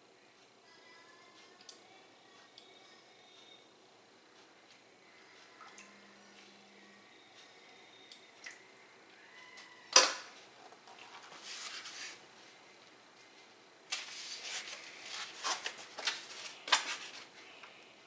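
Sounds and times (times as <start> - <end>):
crackling rustling handling noise: 10.4 - 17.8.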